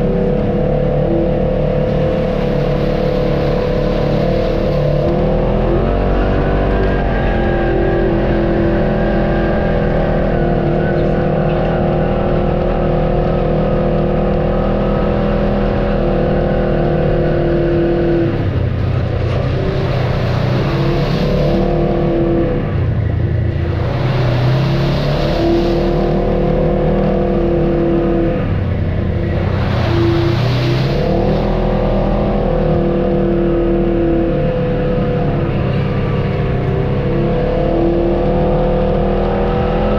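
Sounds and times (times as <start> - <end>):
vehicle engine running under load: 0.0 - 39.9.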